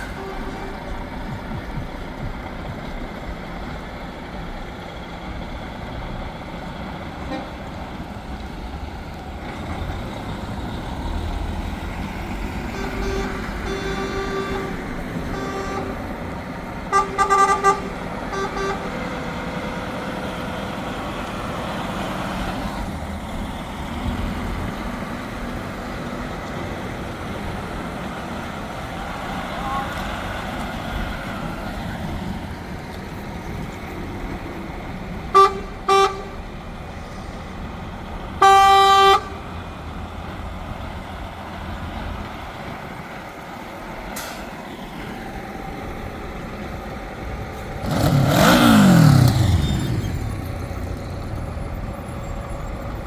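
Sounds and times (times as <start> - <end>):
truck horn short blasts: 0.0 - 1.0, 7.2 - 7.6, 12.7 - 16.2, 16.9 - 19.0, 29.5 - 30.0, 35.3 - 36.4, 38.4 - 39.4
trucks driving past: 0.0 - 53.0.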